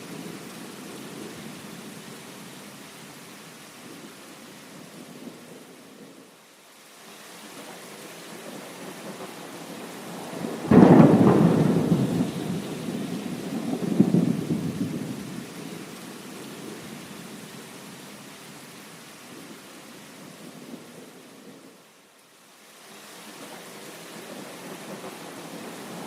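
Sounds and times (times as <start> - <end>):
steady rain: 0.0 - 26.0
thunderclap rumbling: 10.1 - 15.6.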